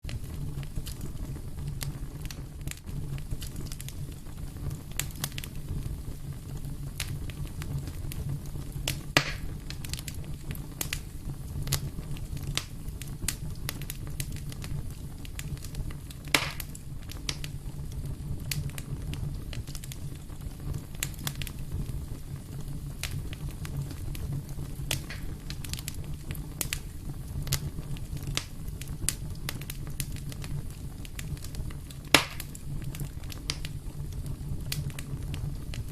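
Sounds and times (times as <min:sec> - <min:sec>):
fire crackling and popping: 0:00.0 - 0:35.9
low fire rumble: 0:00.0 - 0:35.9.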